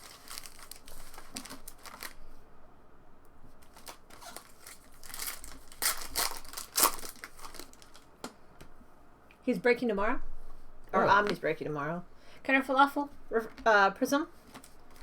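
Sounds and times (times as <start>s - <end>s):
foil wrappers crinkling and tearing: 0.0s - 2.4s, 3.6s - 8.1s, 14.4s - 15.0s.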